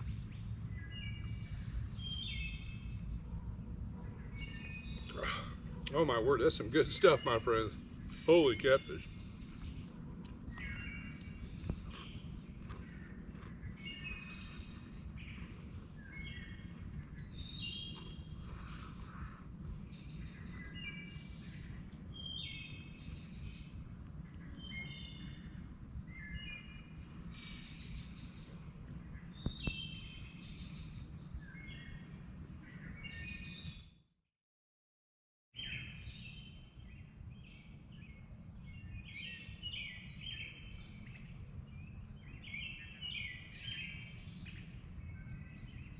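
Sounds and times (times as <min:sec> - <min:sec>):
low steady rumble: 0:00.0 - 0:29.5
birds singing: 0:00.0 - 0:33.9, 0:35.6 - 0:45.9
insects droning: 0:00.0 - 0:34.0, 0:35.6 - 0:45.9.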